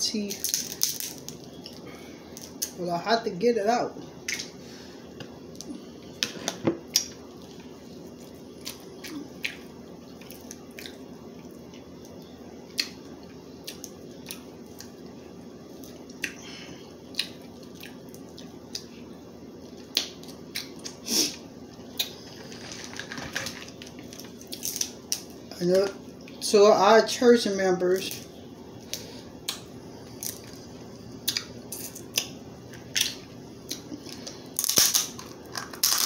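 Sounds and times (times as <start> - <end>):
steady low hum: 0.0 - 36.0
crab shell cracking: 34.2 - 36.0.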